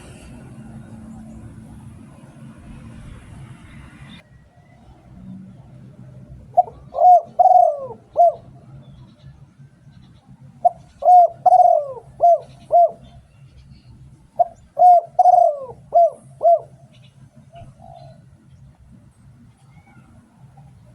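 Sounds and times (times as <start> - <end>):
dove cooing: 5.5 - 9.1, 10.4 - 13.3, 14.2 - 18.4.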